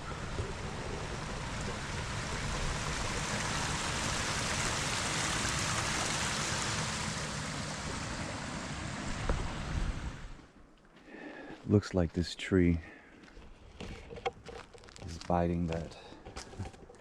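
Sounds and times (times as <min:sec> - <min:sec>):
rushing water: 0:00.0 - 0:10.4.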